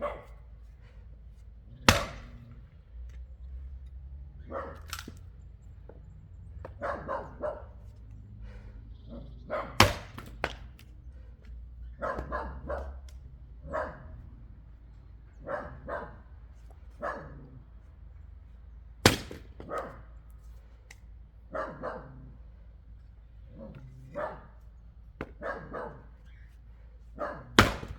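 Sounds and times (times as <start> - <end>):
dog barking: 0.0 - 0.4, 4.4 - 4.9, 6.6 - 7.8, 9.1 - 9.8, 11.9 - 13.0, 13.6 - 14.2, 15.3 - 16.3, 17.0 - 17.6, 19.6 - 20.0, 21.5 - 22.4, 23.5 - 24.6, 25.4 - 26.2, 27.2 - 27.8
axe striking wood: 1.8 - 2.7, 9.8 - 10.9, 19.0 - 19.9, 27.5 - 27.9.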